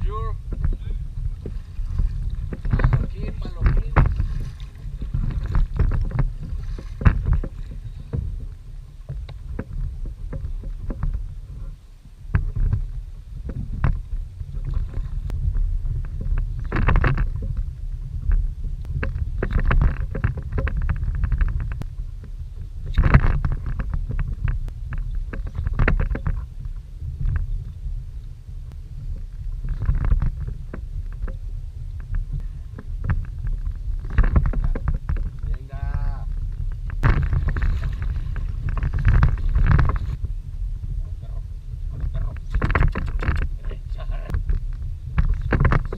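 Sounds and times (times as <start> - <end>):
wind buffeting microphone: 0.0 - 45.9
water slapping plastic hull: 0.5 - 11.3, 36.5 - 40.3, 41.9 - 43.6.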